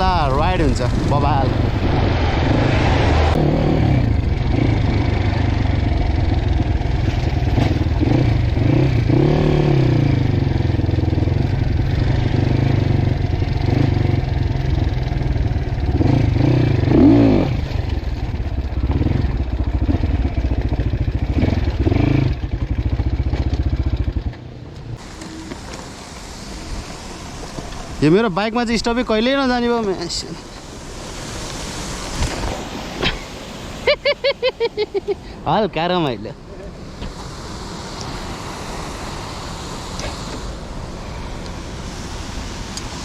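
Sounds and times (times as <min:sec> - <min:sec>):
dirt bike engine revving: 0:00.0 - 0:24.3.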